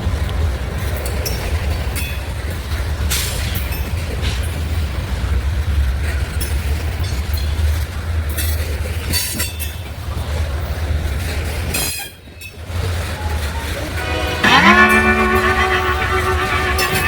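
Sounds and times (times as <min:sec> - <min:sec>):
train rumbling past: 0:00.0 - 0:17.0
high wheel squeals: 0:13.0 - 0:17.0.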